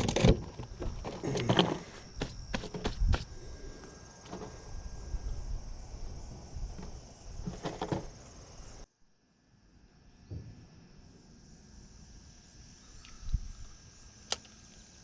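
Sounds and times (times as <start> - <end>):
handling knocks and rustles: 0.0 - 3.3, 6.7 - 8.2
insects trilling: 0.0 - 15.0.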